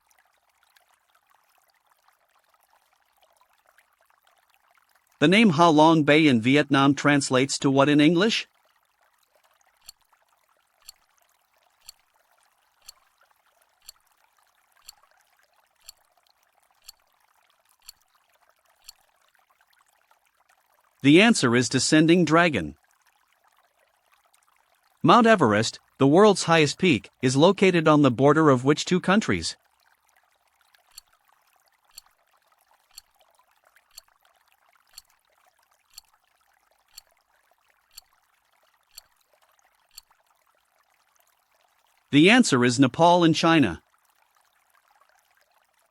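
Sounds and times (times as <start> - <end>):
timer ticking: 9.8 - 10.0, 11.8 - 12.0, 12.8 - 13.0, 13.8 - 14.0, 14.8 - 15.0, 15.8 - 16.0, 16.8 - 17.0, 17.8 - 18.0, 30.9 - 31.1, 32.9 - 33.1, 35.9 - 36.1, 37.9 - 38.1, 38.9 - 39.1.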